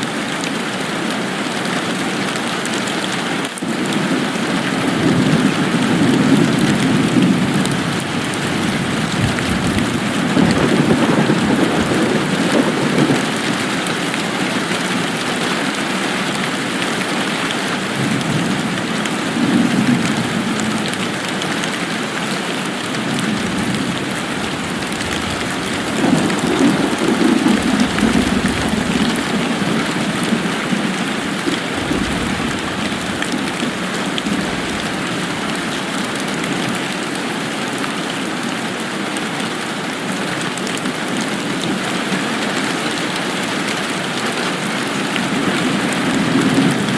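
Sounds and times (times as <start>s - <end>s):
steady rain hiss: 0.0s - 46.9s
low rumbling: 23.3s - 36.0s.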